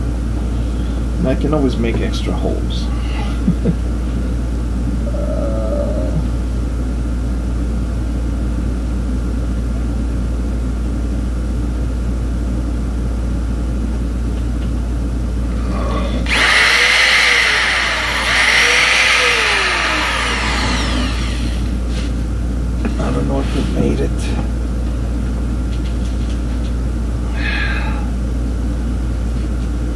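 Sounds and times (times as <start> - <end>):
steady low hum: 0.0 - 29.9
electric drill drilling into wood: 16.3 - 21.7.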